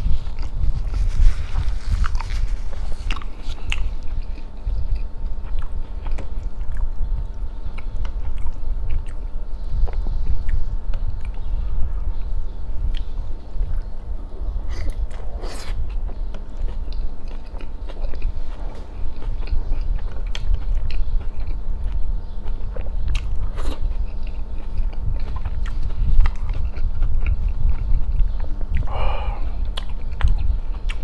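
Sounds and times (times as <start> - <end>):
biting into soft bread roll: 0.0 - 6.9
wet chewing with lip smacks: 0.0 - 11.5, 14.7 - 28.9, 29.5 - 31.0.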